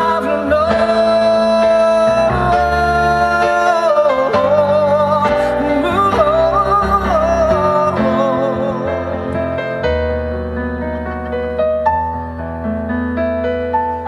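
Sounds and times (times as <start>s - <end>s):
person singing long notes: 0.0s - 9.6s
live band playing pop ballad: 0.0s - 14.0s
piano: 0.0s - 14.0s.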